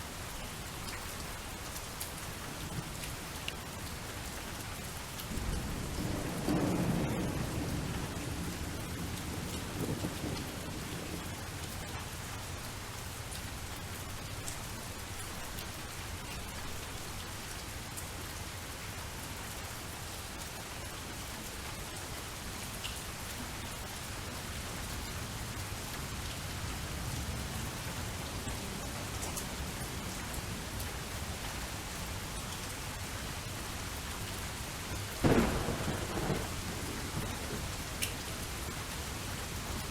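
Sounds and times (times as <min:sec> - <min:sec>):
rain falling: 0:00.0 - 0:39.9
thunder rumbling: 0:05.3 - 0:11.3, 0:35.2 - 0:39.9.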